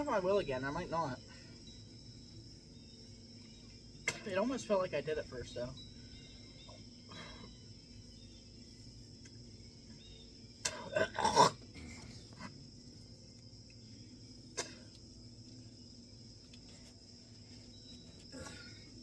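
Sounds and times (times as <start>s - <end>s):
high-pitched background hiss: 0.0s - 19.0s
person retching: 10.6s - 12.0s.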